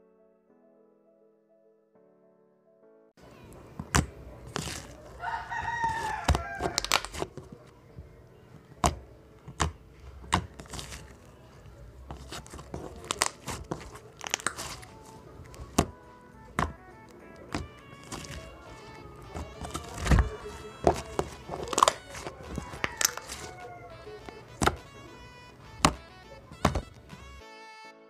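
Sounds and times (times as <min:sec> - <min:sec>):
rooster crowing: 0:05.1 - 0:07.3, 0:19.4 - 0:25.1.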